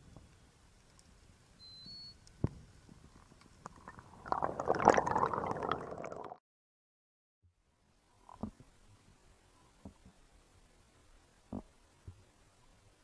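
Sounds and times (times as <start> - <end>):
underwater gurgling and crackling: 2.3 - 6.4.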